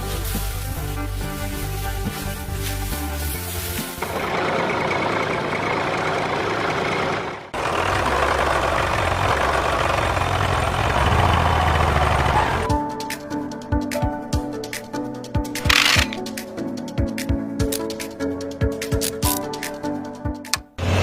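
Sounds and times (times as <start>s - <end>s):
tractor engine running: 0.0s - 12.7s, 15.6s - 16.2s, 20.8s - 21.0s.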